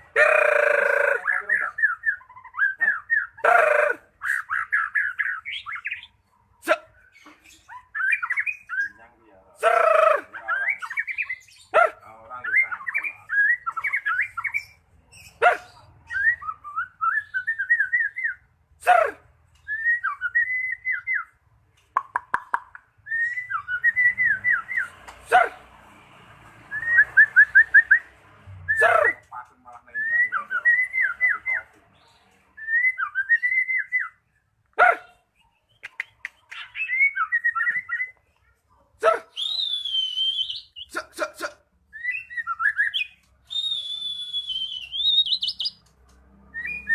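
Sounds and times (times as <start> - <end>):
songbird warbling and whistling: 0.1 - 6.2, 7.0 - 9.0, 9.7 - 11.8, 12.4 - 18.5, 23.0 - 25.0, 32.6 - 34.4, 35.4 - 38.2, 39.3 - 40.9, 41.9 - 45.9, 46.5 - 46.9
bird harsh squawk: 0.1 - 9.0, 39.0 - 41.3, 42.0 - 45.9.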